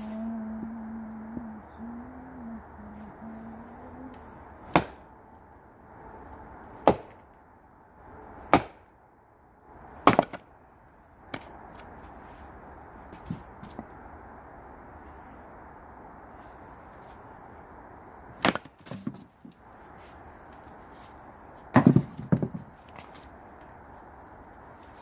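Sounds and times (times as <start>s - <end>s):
axe splitting firewood: 4.7s - 5.0s, 6.8s - 7.3s, 8.4s - 8.8s, 10.0s - 10.4s, 18.4s - 19.5s, 21.7s - 23.2s.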